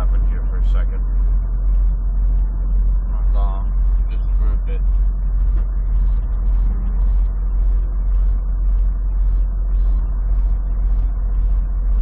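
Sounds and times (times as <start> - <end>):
faint pulsing hiss: 0.0 - 12.0.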